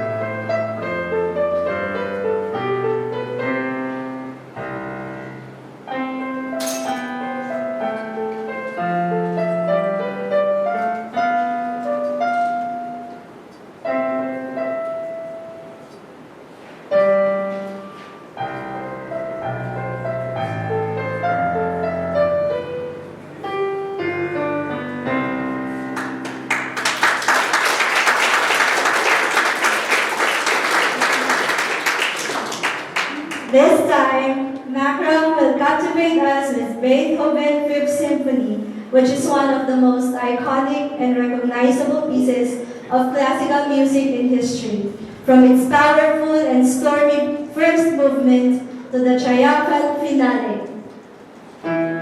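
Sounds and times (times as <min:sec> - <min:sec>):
solo piano piece: 0:00.0 - 0:50.0, 0:51.0 - 0:52.0
audience applause: 0:26.0 - 0:33.6.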